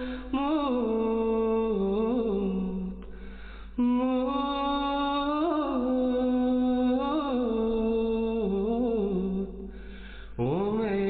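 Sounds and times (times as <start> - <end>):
quick breath: 0.0 - 0.3, 3.1 - 3.8, 9.7 - 10.4.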